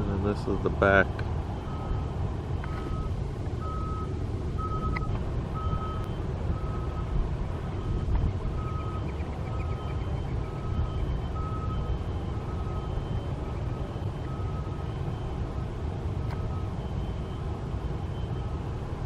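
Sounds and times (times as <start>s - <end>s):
reversing alarm beeping: 1.5s - 18.7s.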